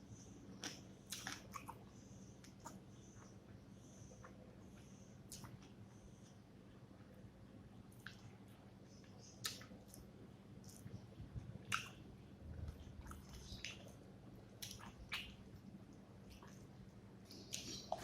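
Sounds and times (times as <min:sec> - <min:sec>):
low steady hum: 0:00.0 - 0:18.0
wet chewing and lip smacks: 0:00.6 - 0:01.8, 0:05.3 - 0:05.7, 0:09.0 - 0:11.0, 0:11.6 - 0:12.0, 0:12.6 - 0:18.0.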